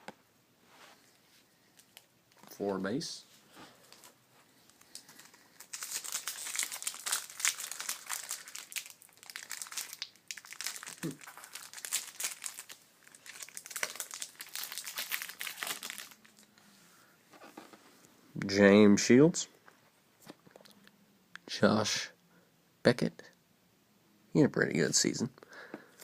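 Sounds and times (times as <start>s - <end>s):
foil wrapper crinkling: 3.8s - 16.4s.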